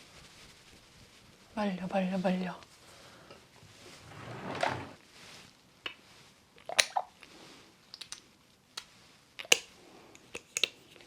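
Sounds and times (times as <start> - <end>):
soft rustle: 0.0 - 6.5.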